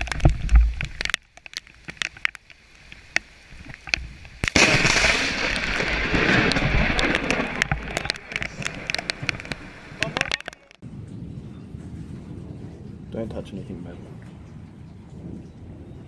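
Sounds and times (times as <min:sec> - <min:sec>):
rain ticking: 0:00.0 - 0:10.8
thunderclap and crackling thunder: 0:04.4 - 0:16.0.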